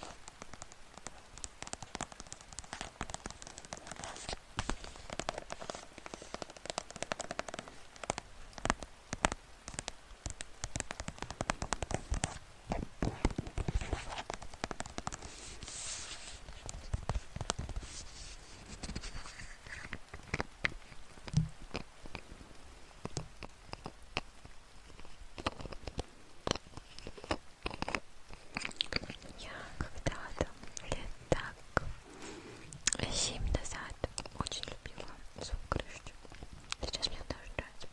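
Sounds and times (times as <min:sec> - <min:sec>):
sharp clicks: 0:00.0 - 0:22.2
crackling and tapping: 0:00.0 - 0:37.9.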